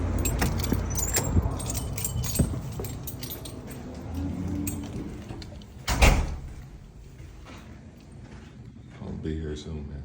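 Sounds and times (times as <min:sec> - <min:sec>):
keys jangling: 0:00.0 - 0:06.8.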